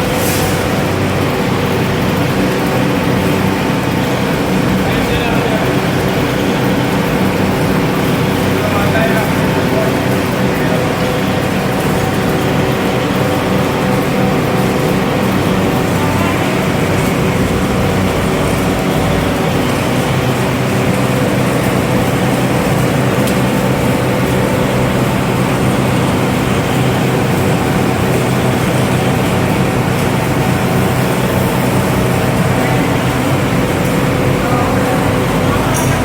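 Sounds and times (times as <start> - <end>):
machinery humming: 0.0 - 36.0.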